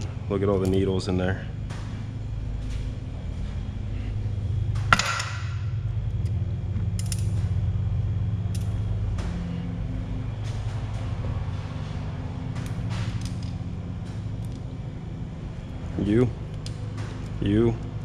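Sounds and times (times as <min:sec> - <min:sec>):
steady low hum: 0:00.0 - 0:18.0
metal parts clinking: 0:07.0 - 0:07.4, 0:12.6 - 0:13.6.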